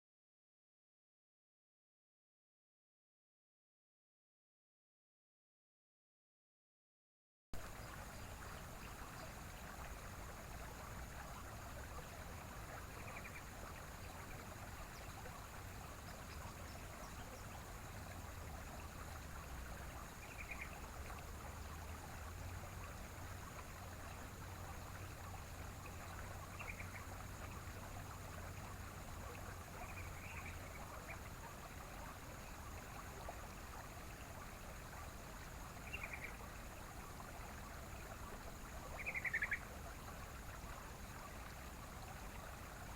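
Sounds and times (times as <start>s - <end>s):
bird chirping calls: 39.0s - 39.6s.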